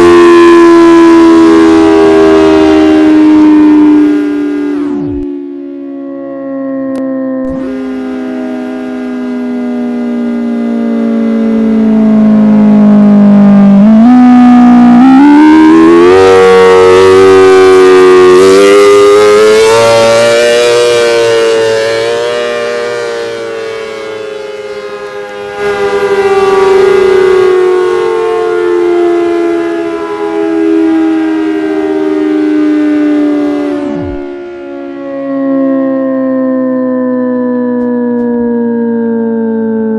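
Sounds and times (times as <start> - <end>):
electromechanical siren winding: 13.7 - 16.2.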